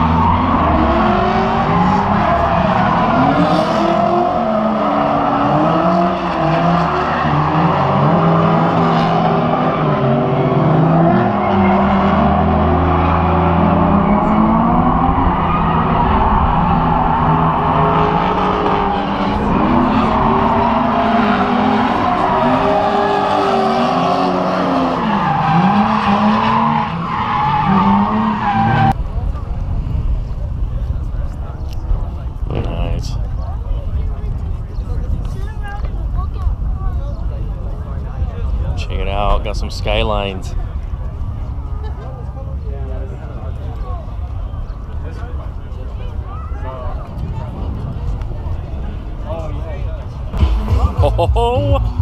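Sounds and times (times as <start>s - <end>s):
car engine revving: 50.4s - 52.0s.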